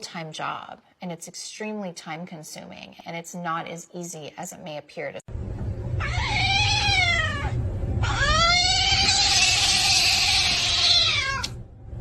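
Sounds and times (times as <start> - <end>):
steady low hum: 5.3 - 12.0
cat meowing: 6.0 - 11.6.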